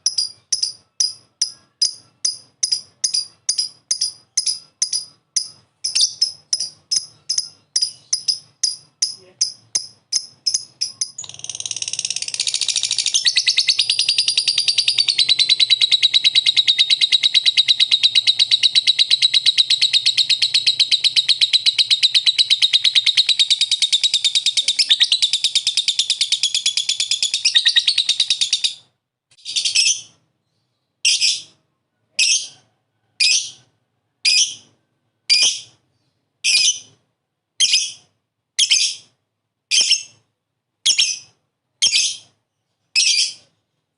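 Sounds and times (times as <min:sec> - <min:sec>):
lovebird chattering trill: 0:00.0 - 0:30.2.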